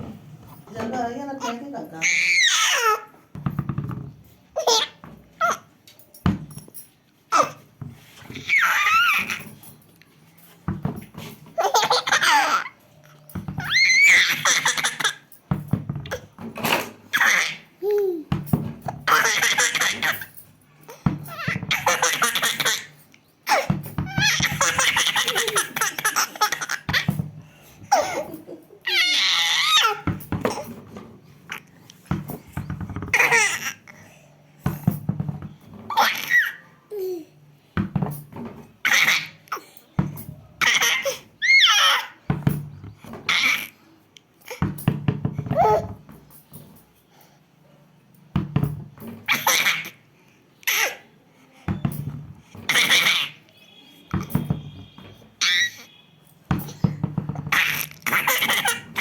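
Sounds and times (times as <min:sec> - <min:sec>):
ball bouncing: 0:03.3 - 0:04.3, 0:10.7 - 0:11.4, 0:13.3 - 0:16.8, 0:18.3 - 0:20.2, 0:23.6 - 0:26.0, 0:26.6 - 0:27.5, 0:32.0 - 0:33.6, 0:34.6 - 0:35.9, 0:37.8 - 0:38.7, 0:42.3 - 0:43.2, 0:44.6 - 0:46.7, 0:48.4 - 0:49.2, 0:51.7 - 0:53.2, 0:54.1 - 0:55.2, 0:56.5 - 0:59.0
ball dropping thump: 0:03.4 - 0:04.2
baby laughing: 0:04.6 - 0:05.7, 0:11.6 - 0:12.8, 0:14.0 - 0:15.3, 0:19.1 - 0:20.3, 0:21.4 - 0:23.7, 0:24.3 - 0:27.2, 0:27.9 - 0:30.6, 0:49.3 - 0:50.0, 0:57.5 - 0:59.0
baby giggling: 0:24.3 - 0:27.1.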